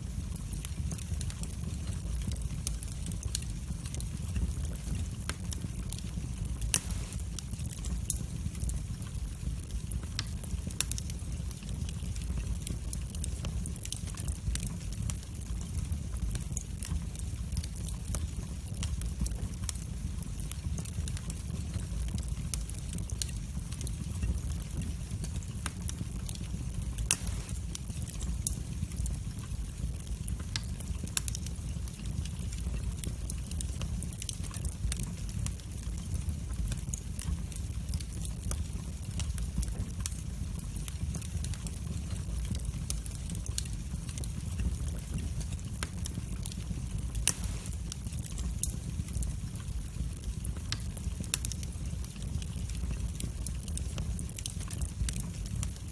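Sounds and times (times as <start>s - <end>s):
fire crackles and pops: 0.0s - 55.9s
fire flames rumbling: 0.0s - 55.9s.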